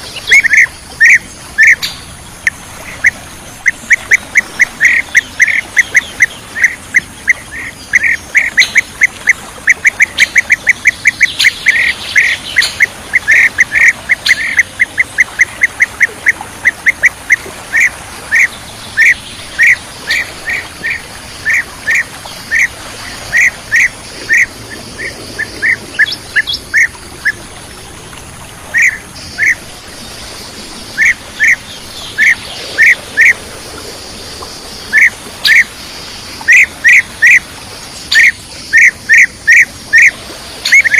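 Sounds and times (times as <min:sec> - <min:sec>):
bird call notes: 0:00.0 - 0:27.4, 0:28.7 - 0:29.7, 0:38.0 - 0:40.9.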